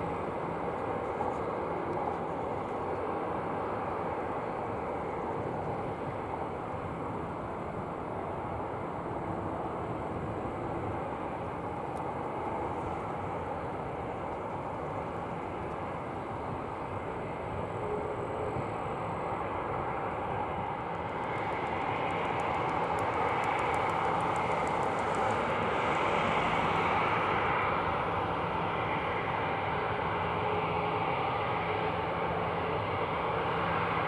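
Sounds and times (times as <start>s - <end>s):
jet engines roaring: 0.0s - 34.0s.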